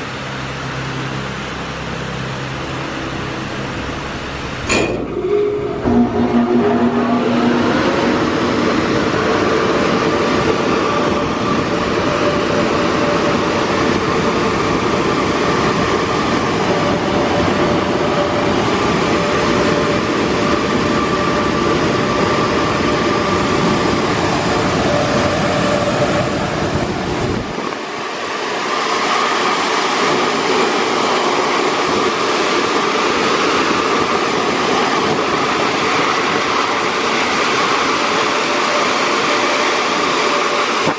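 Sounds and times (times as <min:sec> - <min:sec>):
car wash whoosh with fan whine: 0:00.0 - 0:04.7, 0:06.4 - 0:40.9
deep rumble: 0:24.9 - 0:27.8.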